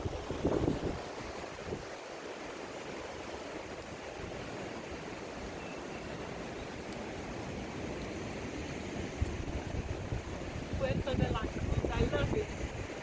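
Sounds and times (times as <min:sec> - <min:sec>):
ocean surf rushing: 0:00.0 - 0:13.0.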